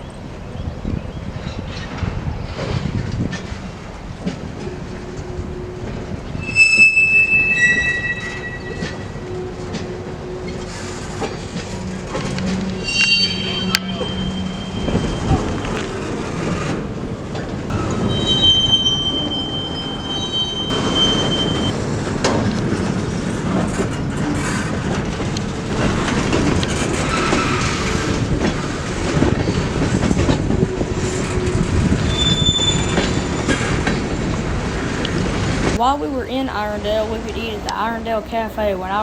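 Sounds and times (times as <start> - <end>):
freight train rumbling on rails: 0.0 - 39.0
high-pitched wheel squeal: 6.4 - 9.4, 11.8 - 15.8, 17.7 - 21.7, 32.0 - 33.5.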